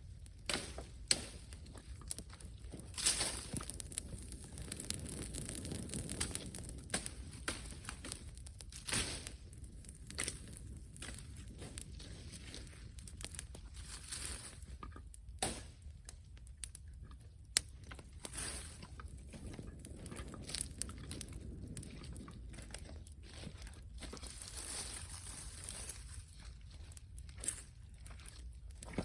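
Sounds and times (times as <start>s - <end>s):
bonfire crackling and popping: 0.0s - 29.0s.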